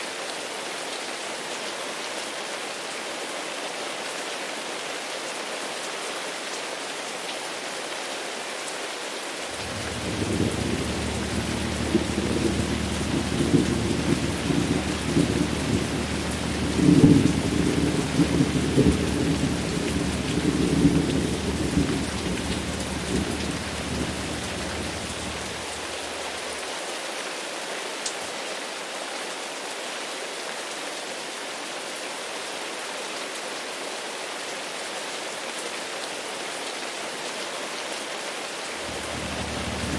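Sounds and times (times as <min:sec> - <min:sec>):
steady rain falling: 0:00.0 - 0:39.9
rolling thunder: 0:09.5 - 0:26.6, 0:38.8 - 0:39.9.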